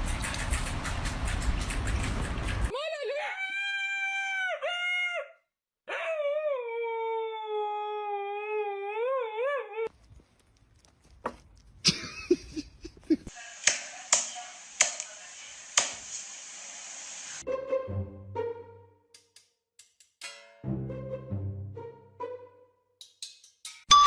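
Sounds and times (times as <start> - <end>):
dog howling: 5.9 - 9.9
steady hiss: 13.3 - 17.4.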